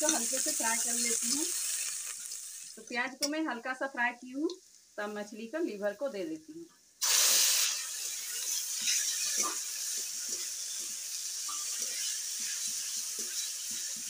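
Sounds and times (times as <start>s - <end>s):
food sizzling in hot oil: 0.0s - 14.0s
metal spatula scraping pan: 7.7s - 14.0s.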